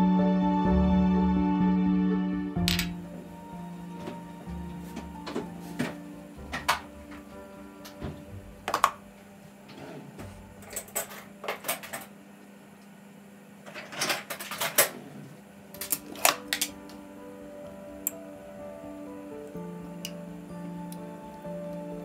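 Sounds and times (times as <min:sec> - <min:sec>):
faint steady hum: 0:00.0 - 0:22.0
household objects clicking and clinking: 0:15.8 - 0:16.8.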